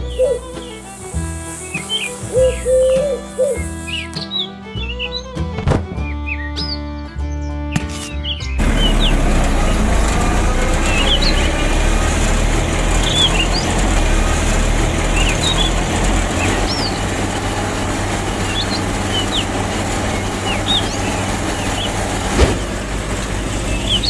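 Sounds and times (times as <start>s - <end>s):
thresher machine running: 0.0s - 4.8s, 8.6s - 24.0s
bird chirps: 0.0s - 9.8s, 18.4s - 22.8s, 23.5s - 24.0s.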